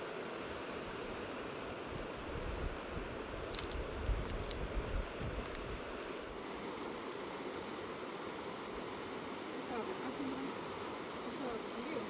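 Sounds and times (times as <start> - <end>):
wind buffeting microphone: 1.8 - 6.0.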